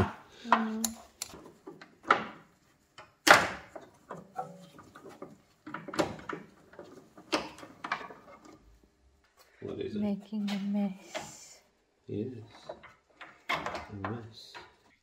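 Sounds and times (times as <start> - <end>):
parts knocking and clattering: 0.0 - 8.8, 12.5 - 15.0.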